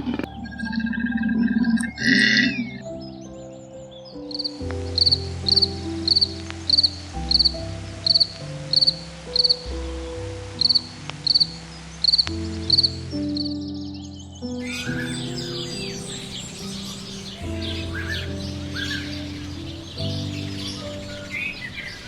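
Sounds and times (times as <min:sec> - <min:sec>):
soft background music: 0:00.0 - 0:22.0
cricket chirping: 0:04.2 - 0:09.6, 0:10.6 - 0:13.6.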